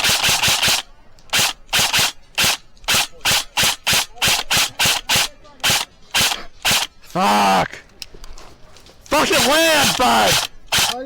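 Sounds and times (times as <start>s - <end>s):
airsoft gun shots: 0.0s - 6.9s, 9.2s - 11.0s.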